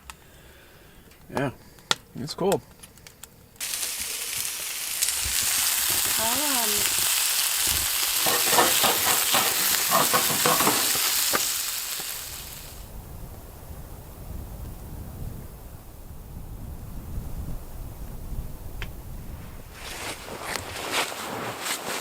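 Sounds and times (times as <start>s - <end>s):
food sizzling in a pan: 3.6s - 12.9s
utensil scraping a pan: 7.8s - 11.5s.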